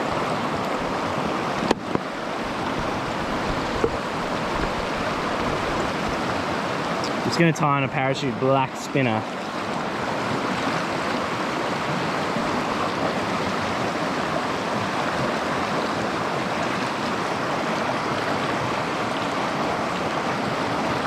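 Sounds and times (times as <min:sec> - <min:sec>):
stream water rushing over rocks: 0:00.0 - 0:21.0.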